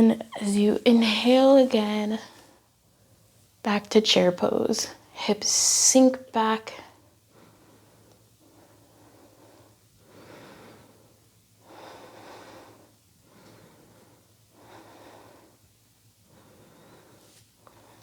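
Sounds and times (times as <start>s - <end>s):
soft breathing through the nose: 6.8s - 18.0s.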